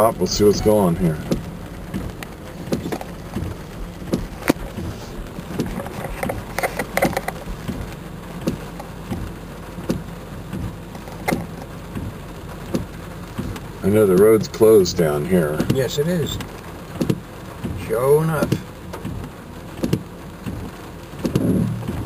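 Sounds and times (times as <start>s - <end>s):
car engine and road noise: 0.0s - 22.0s
light taps and clicks: 1.2s - 12.1s, 15.6s - 15.8s, 16.4s - 17.8s, 18.4s - 22.0s.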